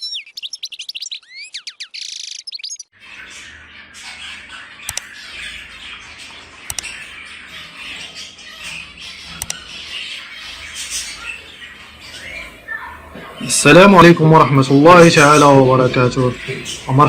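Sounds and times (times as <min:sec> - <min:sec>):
budgerigars chattering and squawking: 0:00.0 - 0:17.0
sharp clicks: 0:04.8 - 0:05.1, 0:06.7 - 0:07.0, 0:09.3 - 0:09.6.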